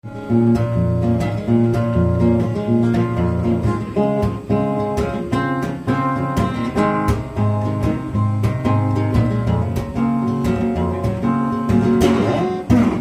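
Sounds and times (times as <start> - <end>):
acoustic guitar strumming chords: 0.0 - 13.0
strong bass line: 9.2 - 13.0.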